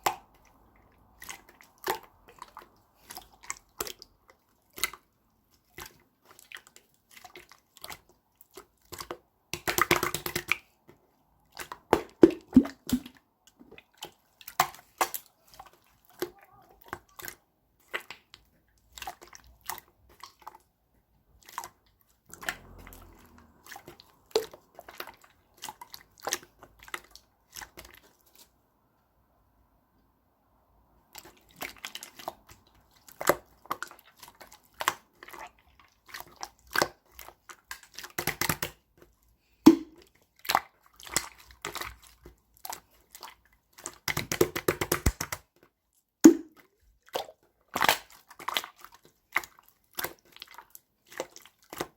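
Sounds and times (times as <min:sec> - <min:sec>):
slime clicking and popping: 0:43.9 - 0:45.4, 0:47.2 - 0:48.6.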